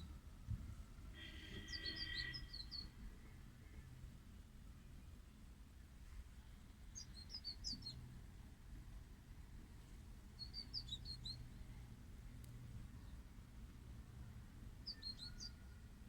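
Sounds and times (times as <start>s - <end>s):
faint low hum: 0.0s - 16.0s
small bird chirping: 1.2s - 3.0s, 6.9s - 8.1s, 10.3s - 11.6s, 14.8s - 15.8s.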